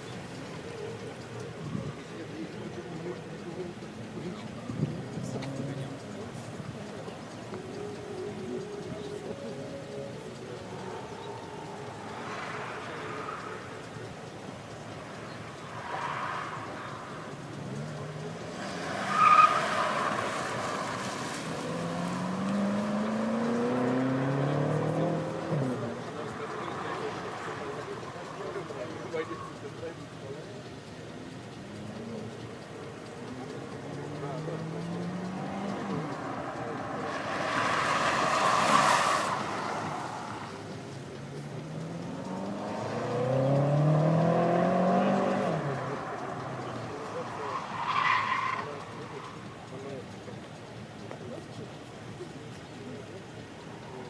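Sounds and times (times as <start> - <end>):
car engine accelerating: 0.0 - 54.0
tyres squealing: 7.6 - 29.9, 32.7 - 50.7.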